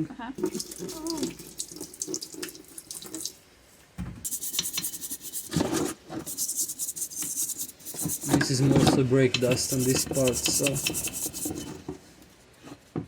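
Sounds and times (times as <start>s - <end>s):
liquid dripping: 0.4s - 3.4s
metal part scrubbed in liquid: 4.3s - 11.9s.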